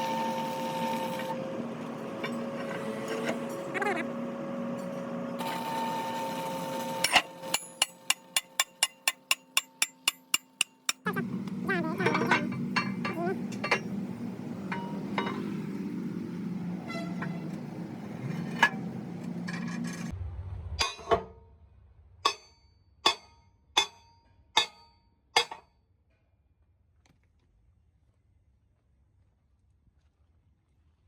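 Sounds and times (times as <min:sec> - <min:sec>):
low machine hum: 0:00.0 - 0:09.1, 0:11.0 - 0:21.2
ringing metal taps: 0:07.4 - 0:15.9, 0:23.1 - 0:25.6.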